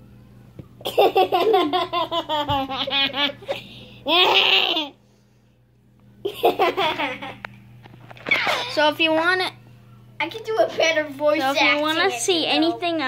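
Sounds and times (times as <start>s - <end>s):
child laughing: 0.8s - 5.0s, 6.3s - 7.4s, 8.3s - 8.8s.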